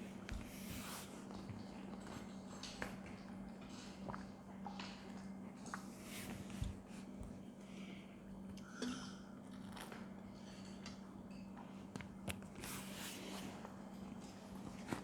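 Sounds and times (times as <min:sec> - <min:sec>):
people chewing food: 0:00.0 - 0:08.6, 0:09.4 - 0:12.6.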